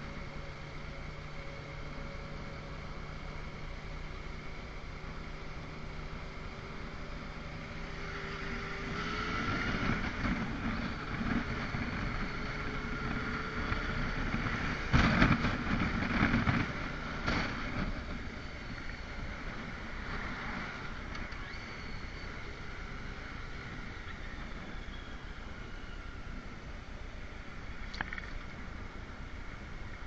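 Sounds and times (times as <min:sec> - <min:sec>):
motorcycle engine running: 0:00.0 - 0:30.0
wind noise on microphone: 0:08.9 - 0:22.4.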